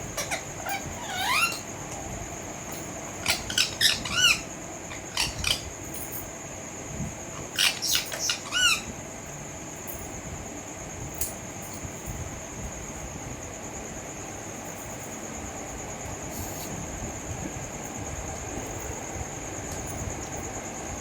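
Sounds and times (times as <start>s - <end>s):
parrot chirping squawks: 0.2s - 1.6s, 3.2s - 5.6s, 7.6s - 8.9s.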